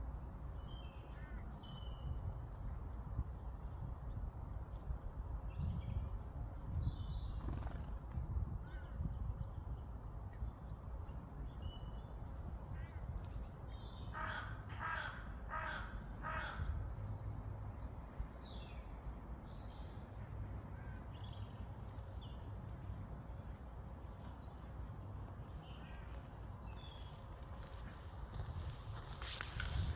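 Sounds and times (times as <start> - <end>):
birds chirping: 12.8 - 29.9
large bird harsh calls: 14.1 - 16.8.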